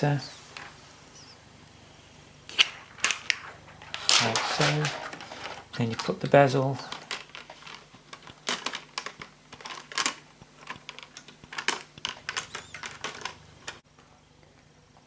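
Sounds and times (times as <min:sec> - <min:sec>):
plastic laptop parts clicking: 0:02.5 - 0:13.8.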